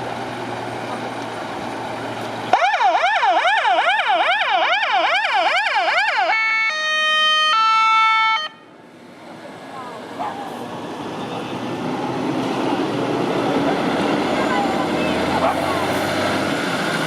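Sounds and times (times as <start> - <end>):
fire truck siren: 2.5 - 8.8.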